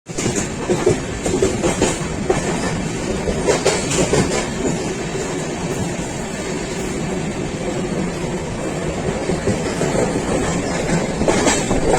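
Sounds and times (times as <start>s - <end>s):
train carriage rumble: 0.1s - 11.9s
wheels clattering on rails: 0.1s - 11.9s.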